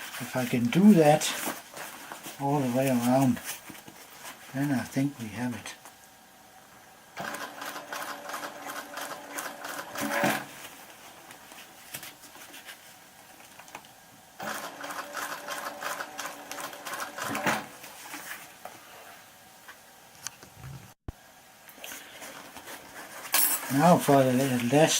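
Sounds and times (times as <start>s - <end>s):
sewing machine stitching: 7.2s - 10.5s, 14.4s - 17.7s.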